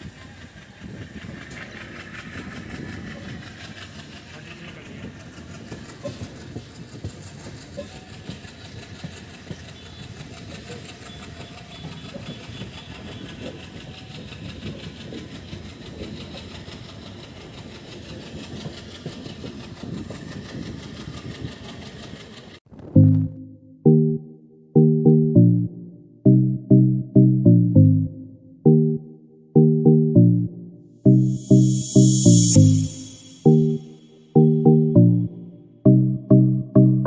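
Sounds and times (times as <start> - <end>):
train wheels clattering over rails: 0.0 - 22.7.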